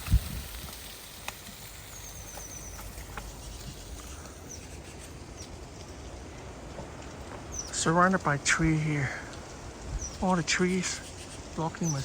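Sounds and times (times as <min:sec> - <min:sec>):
bird chirping: 0:01.9 - 0:05.5, 0:07.5 - 0:07.9, 0:09.9 - 0:12.0.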